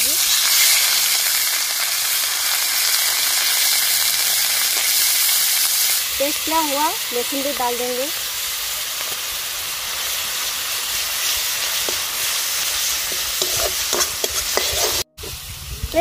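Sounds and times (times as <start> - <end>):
paste sizzling in oil: 0.0 - 15.6
wooden spatula scraping pan: 13.1 - 15.1.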